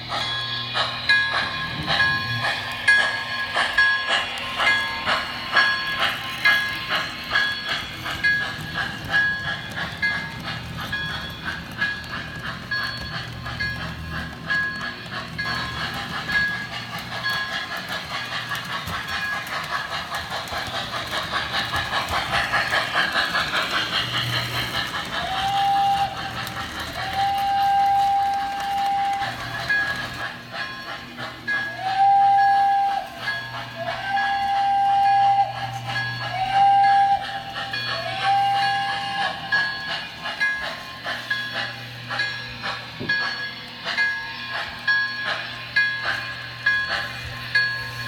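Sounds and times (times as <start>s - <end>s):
steam locomotive chuffing: 0.0s - 48.0s
train whistle blowing: 25.2s - 29.5s, 31.6s - 39.7s.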